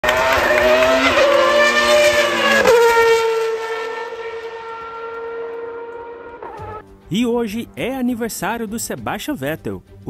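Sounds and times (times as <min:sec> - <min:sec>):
racing car engine at high revs: 0:00.0 - 0:06.8.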